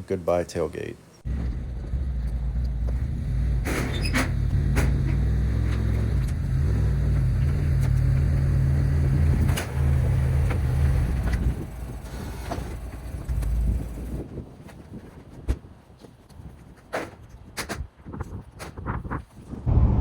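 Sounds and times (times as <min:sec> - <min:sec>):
tractor diesel engine running: 0:01.3 - 0:14.3.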